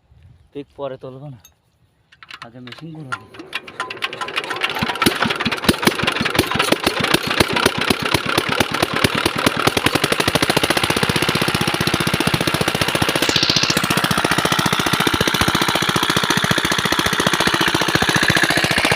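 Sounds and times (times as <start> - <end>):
diesel pump engine knocking: 3.1 - 18.9.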